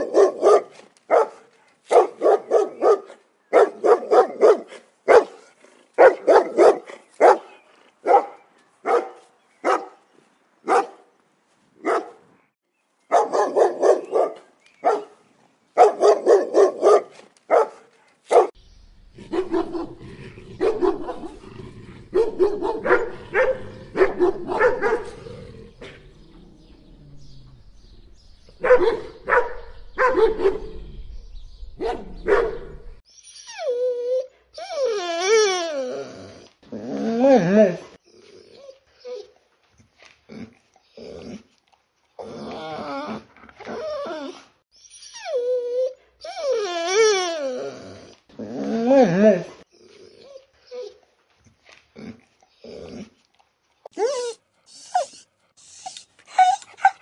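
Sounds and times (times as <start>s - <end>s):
dog barking: 0.0s - 5.4s, 6.0s - 10.0s, 10.7s - 11.0s, 11.8s - 12.2s, 13.1s - 15.2s, 15.8s - 18.6s, 19.3s - 20.0s, 20.6s - 21.4s, 22.1s - 25.2s, 28.6s - 30.8s, 31.8s - 32.8s.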